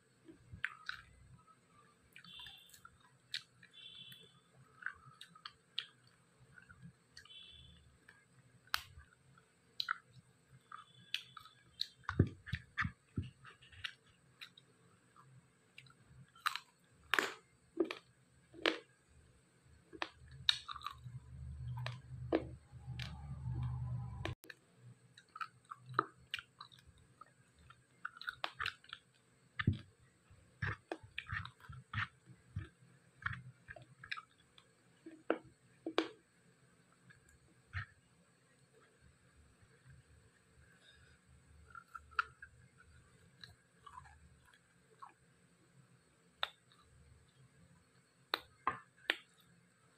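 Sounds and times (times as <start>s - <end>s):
low steady hum: 0.0s - 49.9s
person chewing with mouth smacks: 20.0s - 23.2s, 27.6s - 29.0s, 30.6s - 34.4s.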